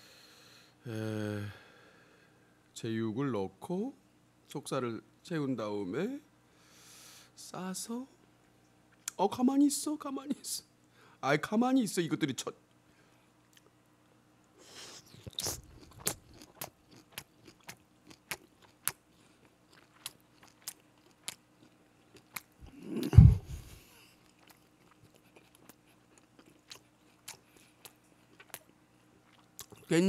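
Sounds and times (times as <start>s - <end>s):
wet chewing clicks and smacks: 15.1s - 22.8s, 24.2s - 29.9s.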